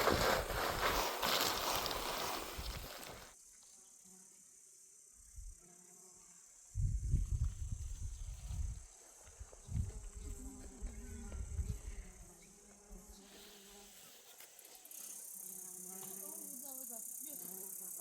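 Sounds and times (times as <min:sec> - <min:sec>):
insects buzzing: 0:00.0 - 0:18.0
wide insect hiss: 0:00.0 - 0:18.0.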